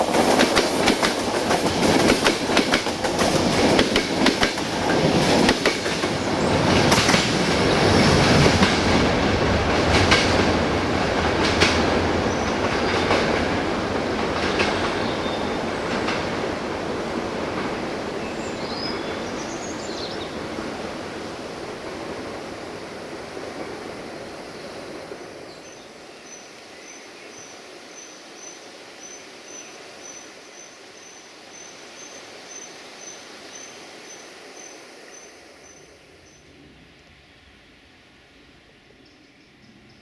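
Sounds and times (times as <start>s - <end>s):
train rumble: 0.0s - 26.1s.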